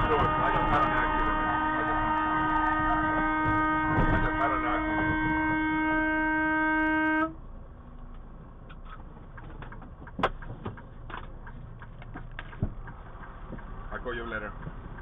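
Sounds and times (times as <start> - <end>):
vehicle horn blast: 0.0 - 7.4
road noise: 0.0 - 15.0.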